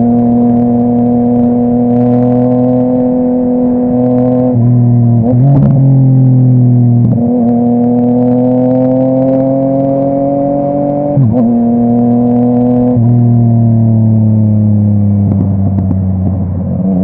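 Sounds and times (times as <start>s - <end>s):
motorcycle engine climbing: 0.0s - 17.0s.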